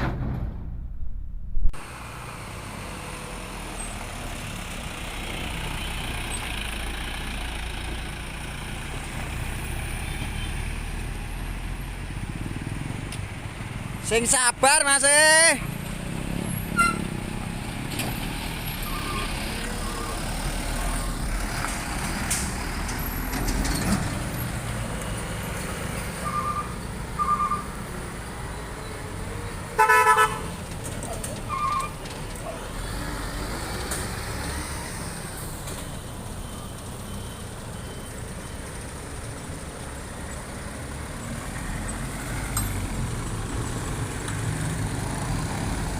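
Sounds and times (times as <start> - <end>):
truck engines and traffic rumble: 0.0 - 45.9
loud horn blast: 29.8 - 30.5.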